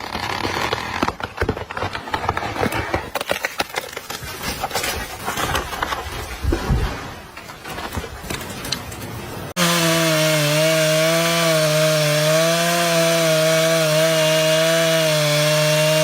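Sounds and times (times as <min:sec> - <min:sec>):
wood cracking and snapping: 0:00.0 - 0:06.5.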